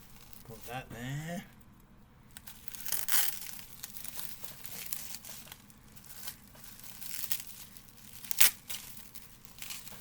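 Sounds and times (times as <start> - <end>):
packaging crinkling: 0.0 - 0.8, 2.3 - 10.0.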